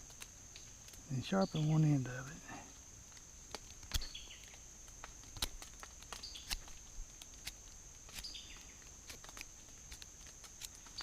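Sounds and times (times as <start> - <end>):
high insect drone: 0.0 - 11.0
knife cutting wood: 5.2 - 8.4.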